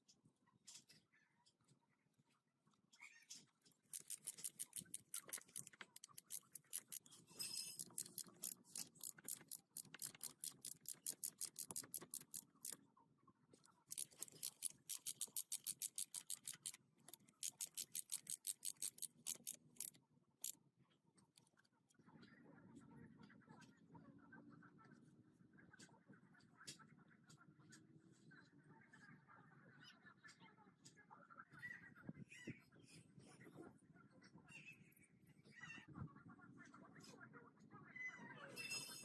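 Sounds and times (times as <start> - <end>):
rapid mechanical clicking: 3.8 - 7.1, 7.8 - 12.8, 13.9 - 20.0.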